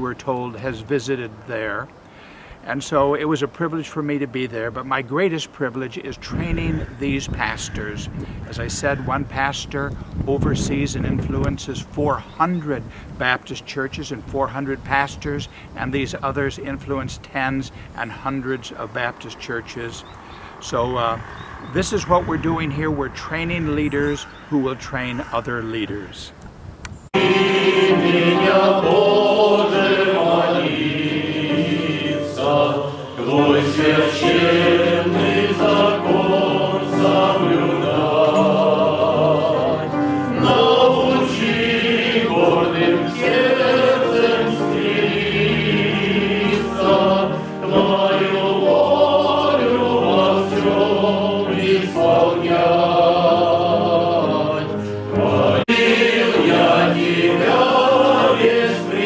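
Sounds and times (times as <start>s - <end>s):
choir singing: 27.2s - 59.0s.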